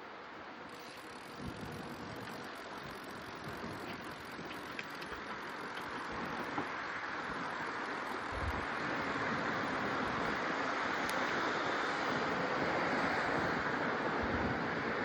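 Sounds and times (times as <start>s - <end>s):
bicycle tyre noise: 0.6s - 15.0s.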